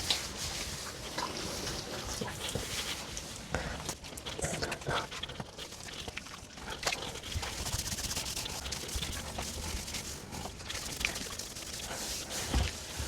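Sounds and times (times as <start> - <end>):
hands rubbing wet fur: 5.0 - 13.0.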